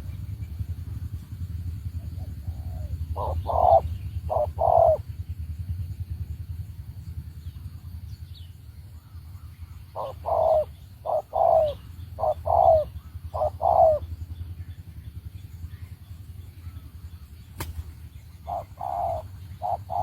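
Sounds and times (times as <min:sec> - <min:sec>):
low rumble: 0:00.0 - 0:20.0
dove cooing: 0:02.0 - 0:05.1, 0:09.5 - 0:14.2, 0:18.4 - 0:20.0.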